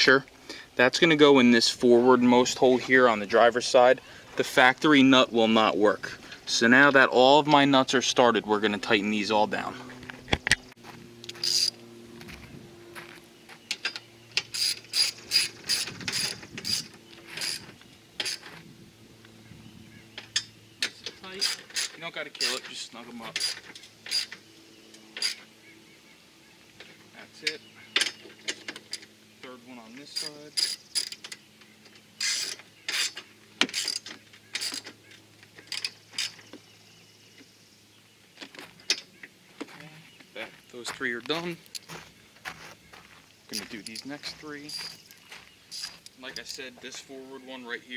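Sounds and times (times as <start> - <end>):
ratchet wrench clicking: 11.3 - 11.8, 32.2 - 34.9
ratchet wrench clicks: 11.3 - 11.8.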